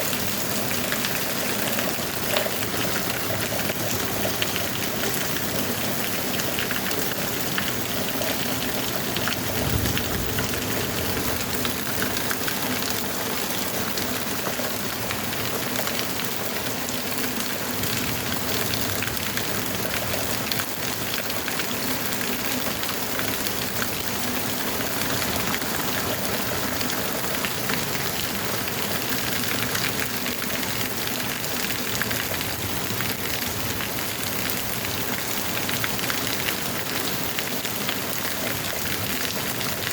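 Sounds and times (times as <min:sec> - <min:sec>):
heavy rain pouring: 0:00.0 - 0:39.9
low rumble: 0:09.2 - 0:12.4.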